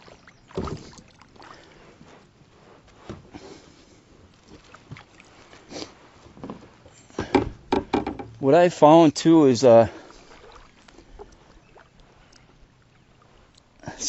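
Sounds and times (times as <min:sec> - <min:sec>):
faint water sounds: 0:00.0 - 0:14.0
knocks on a kayak: 0:07.2 - 0:08.4.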